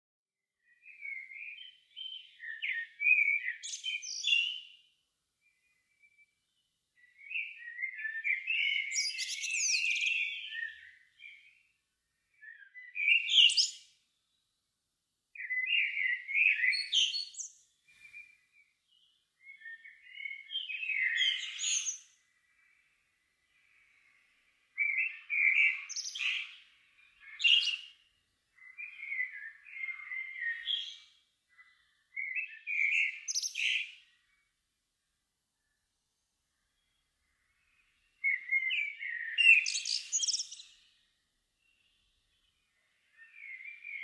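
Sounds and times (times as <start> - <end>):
songbird singing: 0.6 - 14.7, 15.3 - 44.0.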